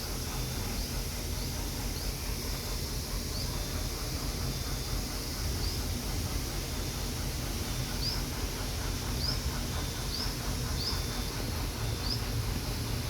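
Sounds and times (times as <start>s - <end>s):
small bird chirping: 8.0s - 8.3s, 9.2s - 11.2s.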